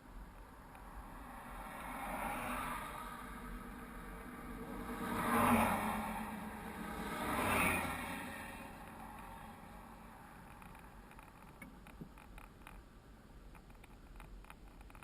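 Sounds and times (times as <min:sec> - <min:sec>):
small clicks and rattles: 0:10.4 - 0:12.9, 0:13.5 - 0:15.0.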